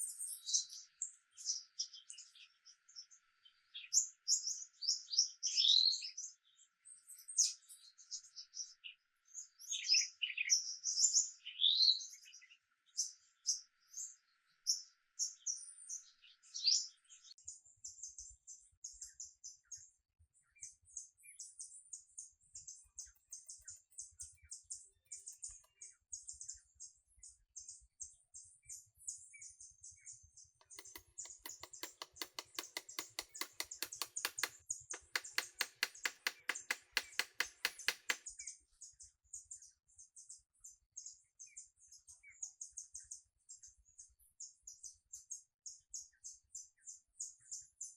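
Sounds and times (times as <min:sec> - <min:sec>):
songbirds chirping: 0:20.4 - 0:38.4
fine high ticking: 0:30.6 - 0:38.2
rapid regular clicking: 0:30.6 - 0:38.3.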